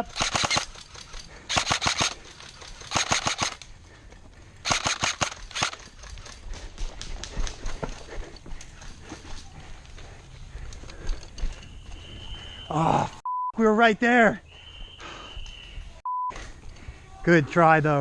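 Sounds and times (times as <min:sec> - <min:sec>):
airsoft guns firing: 0:00.0 - 0:00.8, 0:01.5 - 0:02.2, 0:02.8 - 0:03.6, 0:04.6 - 0:05.8.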